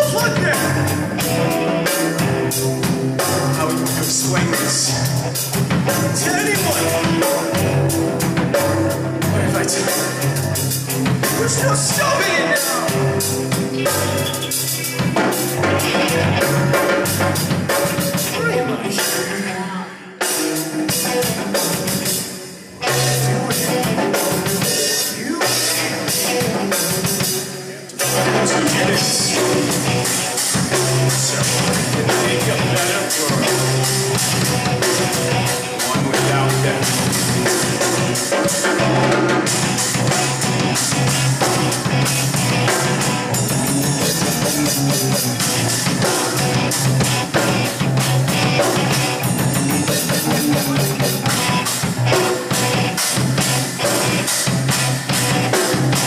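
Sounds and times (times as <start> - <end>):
rock music with drums and guitar: 0.0 - 56.0.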